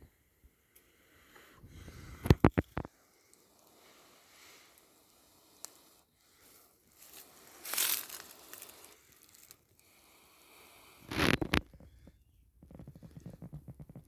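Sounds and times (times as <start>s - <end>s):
dry bark rustling and crackling: 2.5s - 9.9s.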